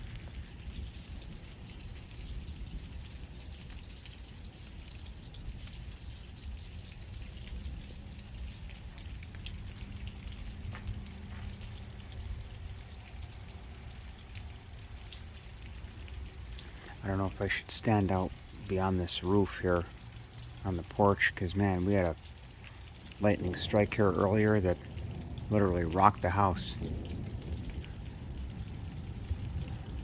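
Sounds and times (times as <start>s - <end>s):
rain dripping: 0.0s - 30.0s
steady low rumble: 15.9s - 30.0s.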